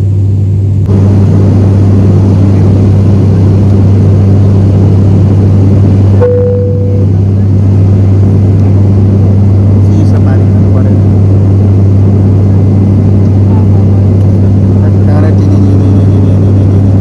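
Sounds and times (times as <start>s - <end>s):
vehicle engine drone: 0.0s - 17.0s
short steady tone: 6.2s - 7.2s.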